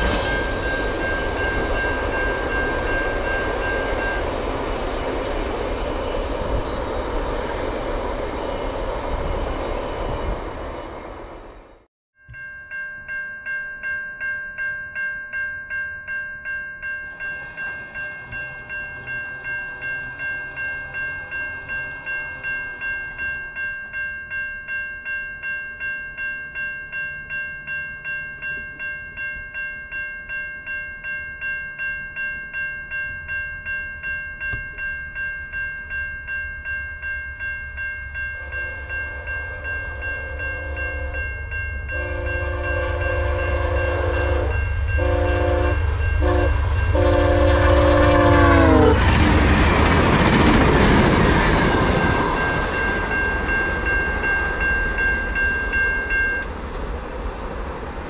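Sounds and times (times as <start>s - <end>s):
railroad crossing bell ringing: 0.0s - 10.3s, 11.7s - 58.0s
rush of train passing: 0.0s - 11.9s, 16.0s - 58.0s
train horn blasts: 38.4s - 49.2s.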